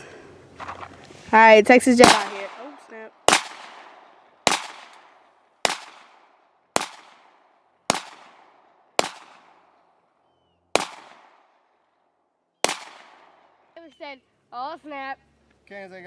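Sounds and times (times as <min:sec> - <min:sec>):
pistol shots with echo: 0:02.0 - 0:10.0, 0:10.7 - 0:11.8, 0:12.6 - 0:13.7.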